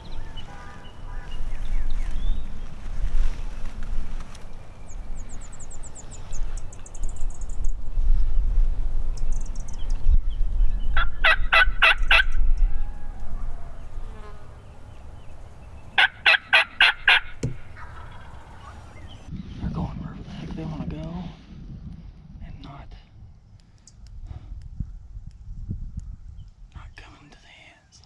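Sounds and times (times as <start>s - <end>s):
low wind rumble: 0.0s - 27.1s
turkey gobbling: 11.0s - 14.1s, 14.8s - 19.3s.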